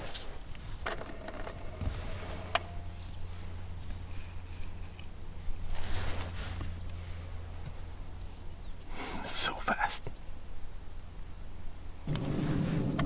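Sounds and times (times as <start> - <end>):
bird high thin calls: 0.0 - 3.5.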